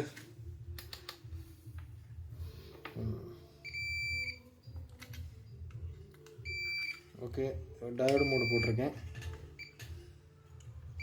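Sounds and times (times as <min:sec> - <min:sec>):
multimeter beep: 0:03.6 - 0:04.4, 0:06.4 - 0:07.0, 0:08.1 - 0:08.8.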